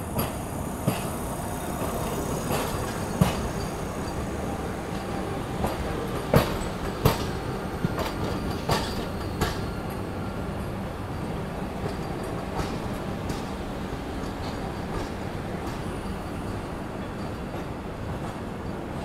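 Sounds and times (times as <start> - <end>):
train rumbling on track: 0.0 - 19.0
wheels clacking over rail joints: 0.1 - 10.0.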